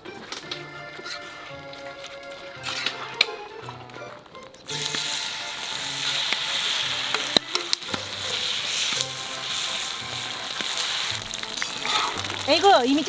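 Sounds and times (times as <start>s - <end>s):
batter sizzling in oil: 4.4s - 13.0s.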